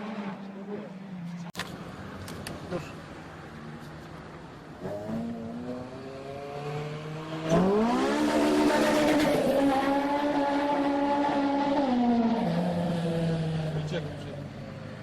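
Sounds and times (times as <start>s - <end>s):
car engine revving hard: 4.8s - 13.9s.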